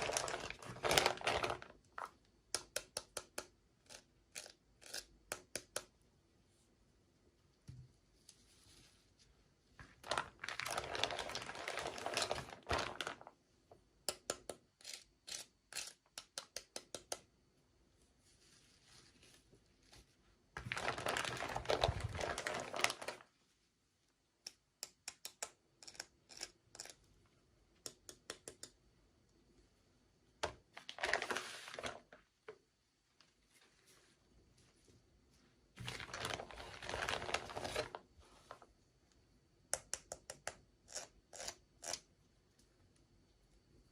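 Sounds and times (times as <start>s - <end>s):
plastic packaging crinkling: 0.0s - 2.1s, 10.0s - 13.3s, 20.6s - 23.3s, 30.7s - 32.2s, 35.8s - 38.6s.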